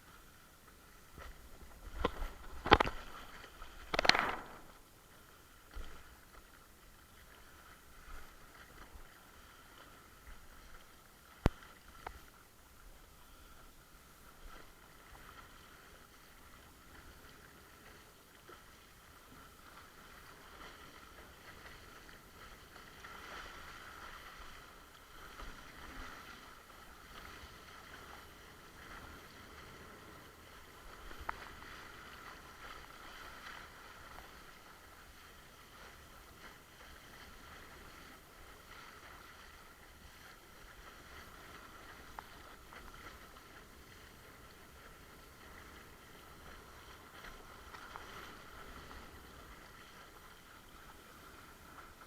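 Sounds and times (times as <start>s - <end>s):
water rushing under board: 0.0s - 52.0s
sharp click: 3.9s - 4.7s.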